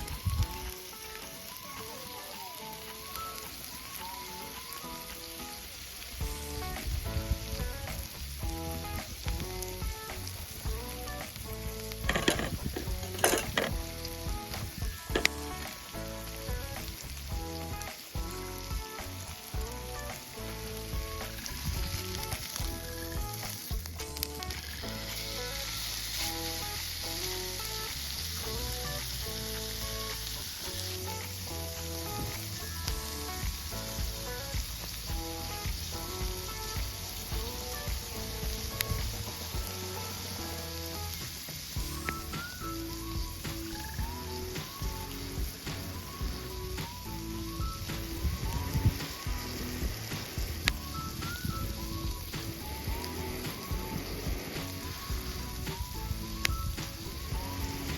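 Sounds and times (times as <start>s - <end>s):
food sizzling: 0.0s - 57.9s
music with plucked melody: 0.0s - 57.9s
sharp clatters: 12.0s - 13.8s.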